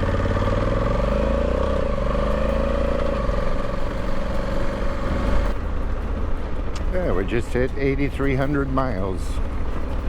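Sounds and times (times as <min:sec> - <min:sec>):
motorcycle engine pulling away: 0:00.0 - 0:05.5.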